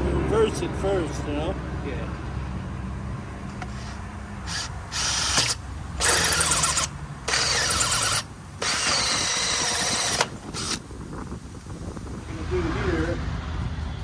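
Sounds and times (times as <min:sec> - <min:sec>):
power drill running: 0:03.6 - 0:10.9.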